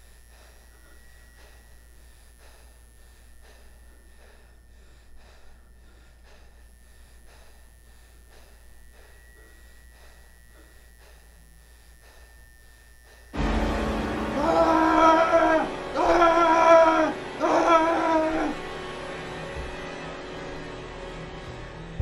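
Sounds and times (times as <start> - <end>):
man breathing shakily: 0.3 - 12.4.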